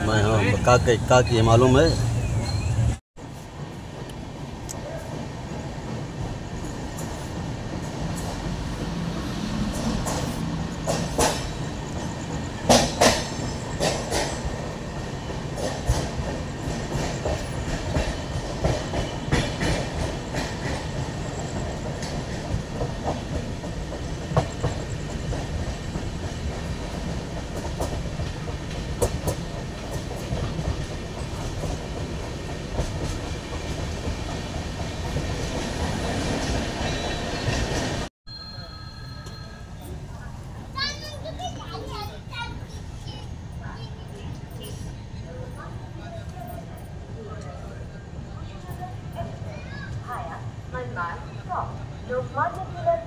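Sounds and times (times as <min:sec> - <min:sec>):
train coach rumble: 0:00.0 - 0:38.1
wheels clacking over rail joints: 0:04.8 - 0:38.1.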